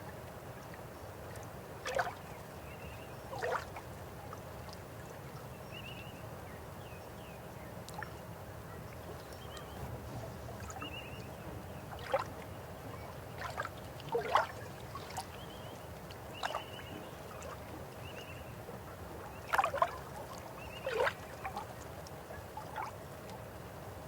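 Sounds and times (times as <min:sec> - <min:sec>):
river water flowing: 0:00.0 - 0:05.7, 0:07.8 - 0:24.0
water gurgles and splashes: 0:01.8 - 0:02.3, 0:03.3 - 0:03.8, 0:13.2 - 0:18.0, 0:19.0 - 0:21.9.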